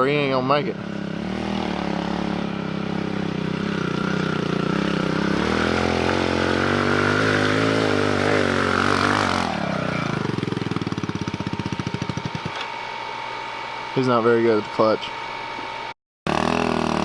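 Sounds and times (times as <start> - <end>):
dirt bike engine revving and chugging: 0.0 - 12.6, 16.3 - 17.0.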